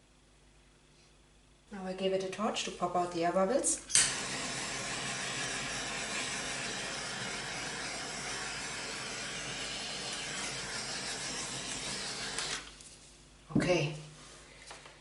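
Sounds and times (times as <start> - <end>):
gas torch flame hissing: 3.9 - 12.7.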